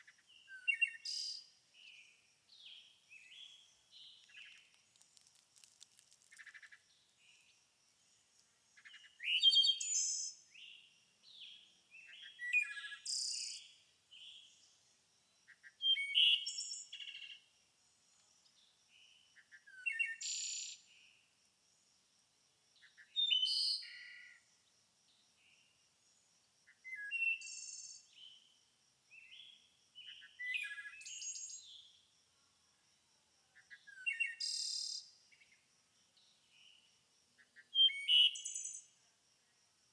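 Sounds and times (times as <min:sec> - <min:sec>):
songbirds chirping: 0:00.0 - 0:21.2.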